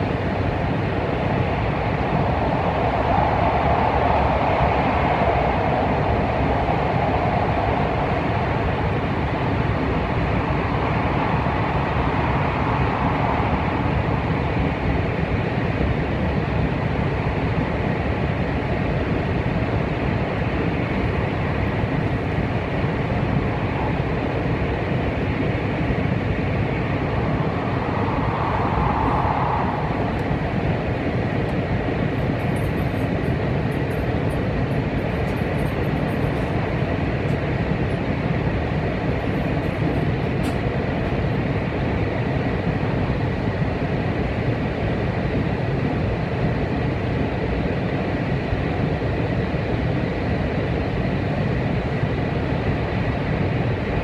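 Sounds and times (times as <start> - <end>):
rushing air: 0.0 - 17.6, 18.2 - 45.8
train wheels rumbling on rail: 29.9 - 41.5.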